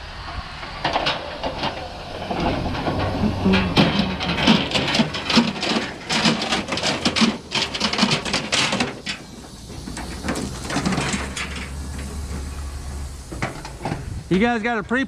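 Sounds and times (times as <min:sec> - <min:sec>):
metal chains clattering: 0:02.5 - 0:14.3.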